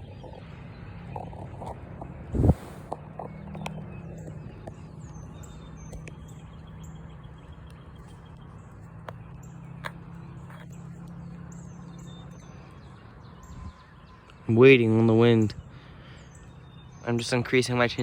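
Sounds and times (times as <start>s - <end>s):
steady low hum: 0.0s - 3.4s.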